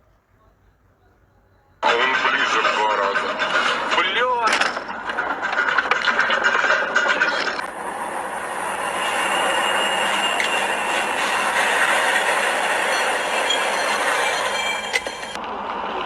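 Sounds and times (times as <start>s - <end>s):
faint high squeals: 0.4s - 15.4s
clicks: 14.8s - 15.5s.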